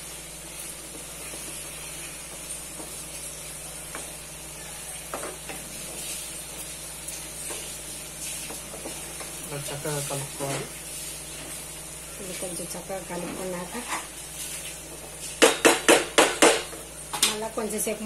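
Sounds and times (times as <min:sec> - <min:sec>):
chicken sizzling in oil: 0:00.0 - 0:18.0
spatula scraping pan: 0:13.1 - 0:14.7.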